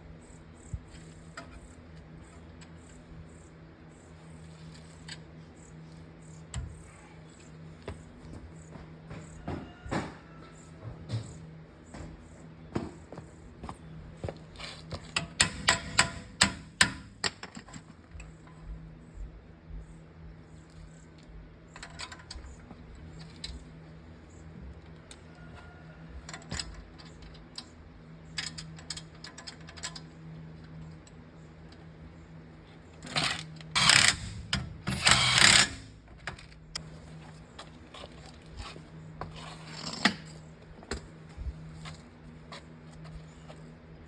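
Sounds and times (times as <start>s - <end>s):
steady low hum: 0.0s - 44.0s
power tool bursts: 33.1s - 36.0s.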